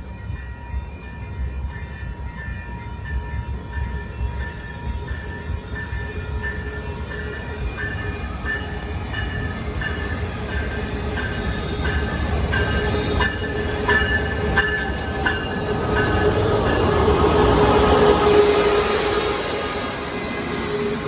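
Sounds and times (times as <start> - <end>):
train rumbling on rails: 0.0 - 21.0
high wheel squeals: 12.6 - 21.0.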